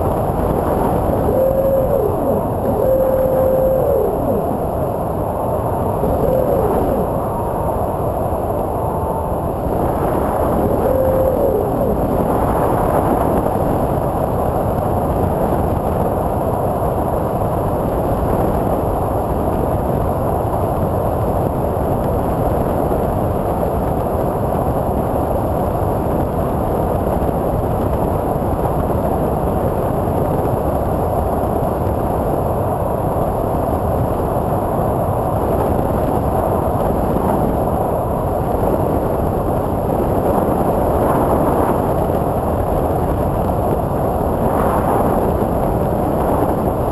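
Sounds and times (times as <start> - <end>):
faint high whine: 0.0 - 14.0
electric motors and propellers: 0.8 - 13.0.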